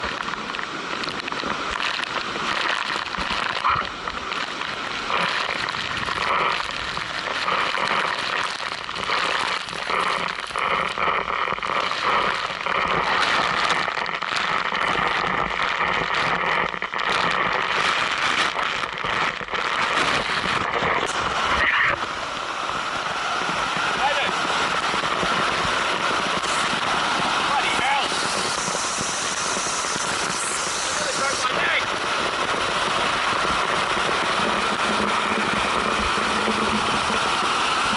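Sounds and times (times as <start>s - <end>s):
waterfall rushing: 3.3s - 10.9s, 20.0s - 37.9s.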